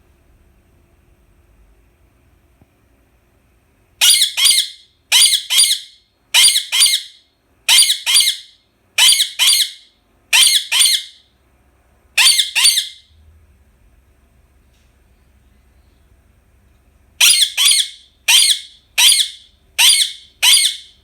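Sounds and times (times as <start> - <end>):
parakeet screeching: 4.0 - 7.1, 7.7 - 11.2, 12.2 - 13.0, 17.2 - 21.0.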